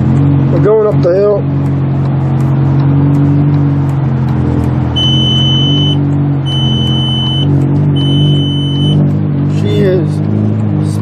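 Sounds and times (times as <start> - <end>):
car engine running under load: 0.0 - 11.0
high electronic warning beep: 5.0 - 9.0.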